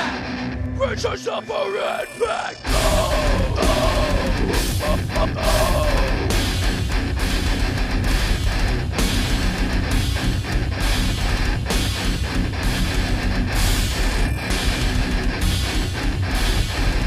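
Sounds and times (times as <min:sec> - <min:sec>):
bass guitar: 0:00.0 - 0:01.1, 0:02.6 - 0:17.0
distorted electric guitars: 0:00.0 - 0:17.0
drums playing a steady beat: 0:02.7 - 0:17.0.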